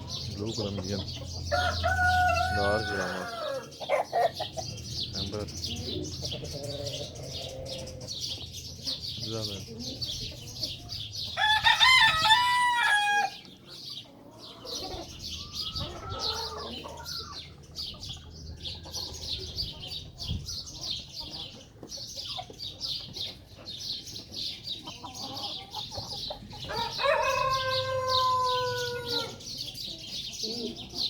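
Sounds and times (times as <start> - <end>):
hens clucking: 0.0 - 31.0
small birds chirping: 0.0 - 31.0
rooster crowing: 1.5 - 3.7, 11.4 - 13.4, 26.7 - 29.4.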